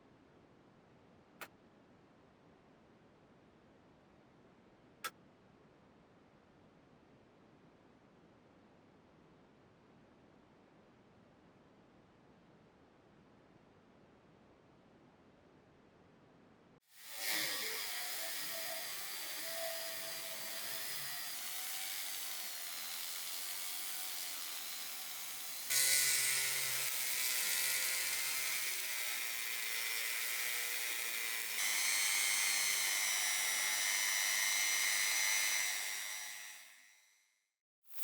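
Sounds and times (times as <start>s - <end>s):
rotary tool whining: 17.0s - 37.0s.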